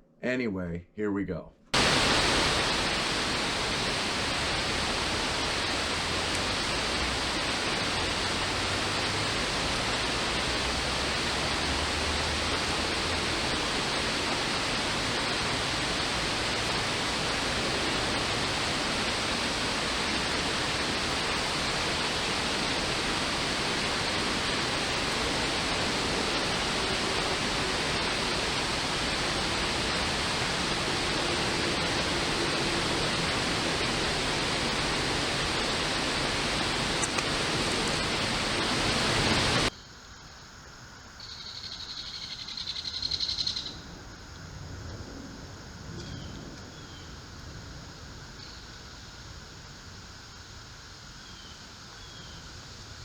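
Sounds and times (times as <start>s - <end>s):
creek water rushing: 1.8s - 39.7s.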